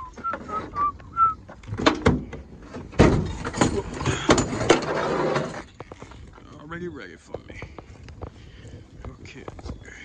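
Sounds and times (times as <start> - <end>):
gear clattering in truck bed: 1.5 - 5.8
tailgate clunking open: 1.7 - 4.8.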